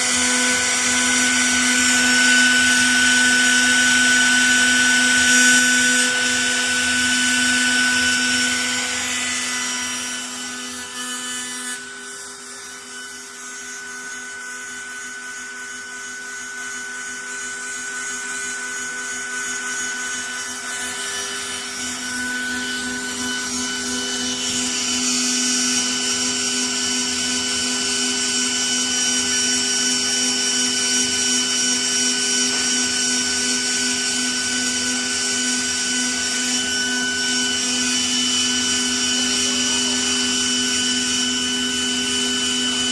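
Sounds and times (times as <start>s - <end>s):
router spindle whine: 0.0s - 42.9s.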